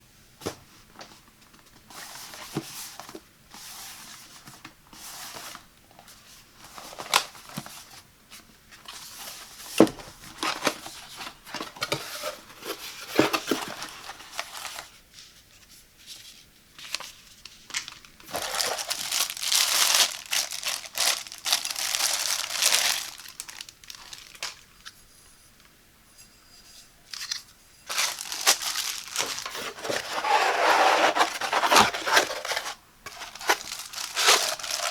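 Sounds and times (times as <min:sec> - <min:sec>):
packaging tearing and rustling: 0:10.3 - 0:14.9, 0:17.7 - 0:24.9, 0:27.2 - 0:34.9.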